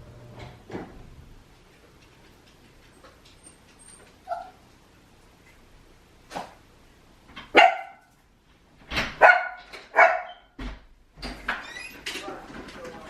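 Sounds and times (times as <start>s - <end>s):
dog barking: 7.5s - 8.1s, 9.2s - 10.5s.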